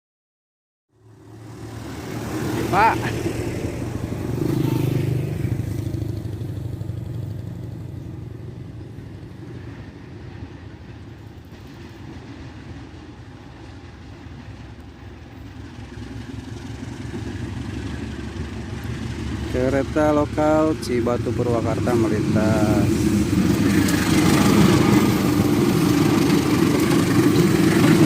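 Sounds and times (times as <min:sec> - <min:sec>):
heavy vehicle passing: 0:01.0 - 0:09.3, 0:15.4 - 0:28.0.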